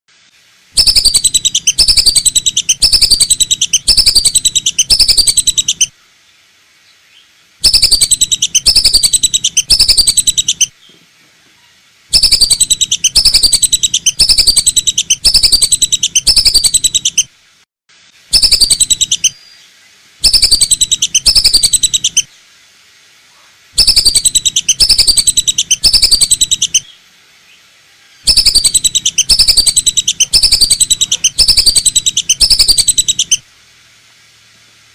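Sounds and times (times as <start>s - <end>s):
rapid falling whistles: 0.8s - 6.0s, 7.6s - 10.8s, 12.1s - 17.3s, 18.3s - 19.4s, 20.2s - 22.3s, 23.8s - 26.8s, 28.3s - 33.4s.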